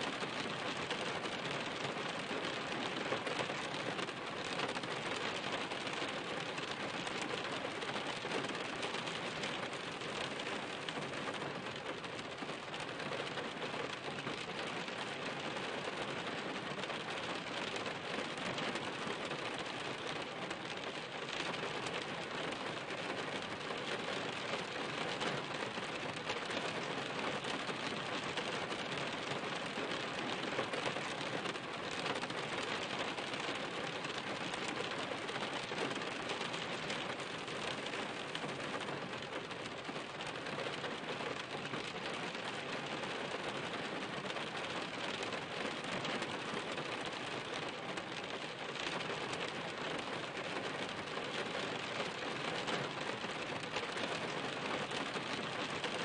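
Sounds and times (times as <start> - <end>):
steady rain patter: 0.0 - 56.0.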